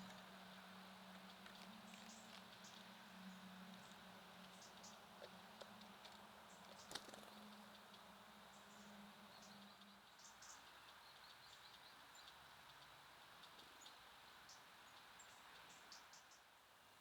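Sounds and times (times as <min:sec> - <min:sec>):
faint songbird chirps: 0:06.5 - 0:16.6.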